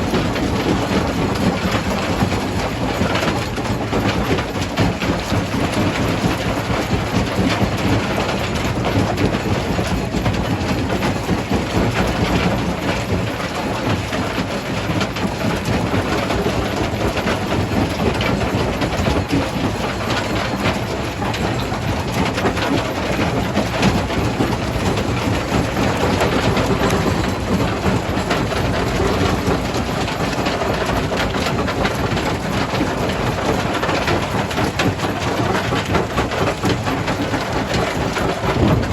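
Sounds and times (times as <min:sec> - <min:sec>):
low machine hum: 0:38.3 - 0:38.9.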